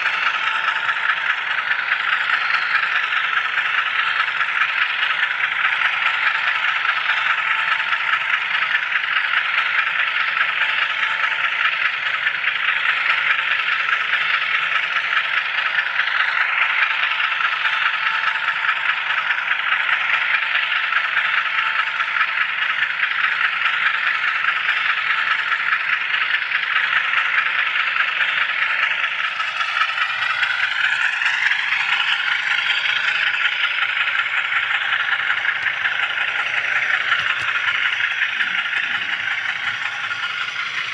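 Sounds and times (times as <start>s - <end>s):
model train wheels rattling: 0.0s - 40.9s
faint whine: 29.3s - 40.9s.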